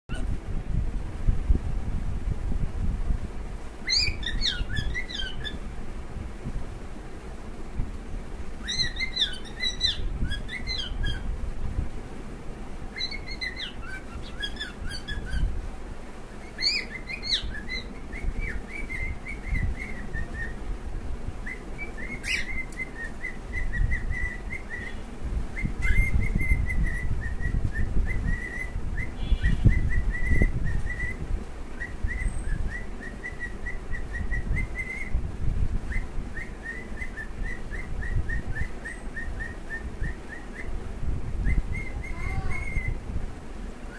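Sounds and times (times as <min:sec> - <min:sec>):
cockatiels chirping and whistling: 0:03.9 - 0:05.6, 0:08.6 - 0:11.2, 0:13.0 - 0:15.5, 0:16.4 - 0:20.6, 0:21.4 - 0:25.0, 0:25.6 - 0:31.2, 0:31.8 - 0:35.1, 0:35.9 - 0:40.7, 0:41.4 - 0:43.0.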